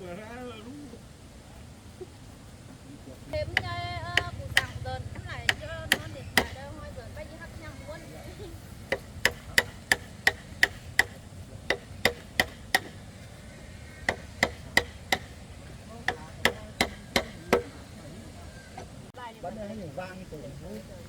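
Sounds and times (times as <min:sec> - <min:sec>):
tool knocking on wood: 0:03.5 - 0:06.7, 0:08.9 - 0:13.0, 0:14.0 - 0:15.4, 0:16.0 - 0:17.8.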